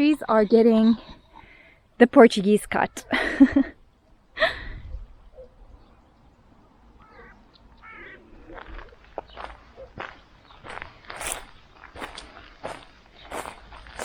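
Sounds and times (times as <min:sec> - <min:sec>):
harsh bird call: 0:07.0 - 0:08.6.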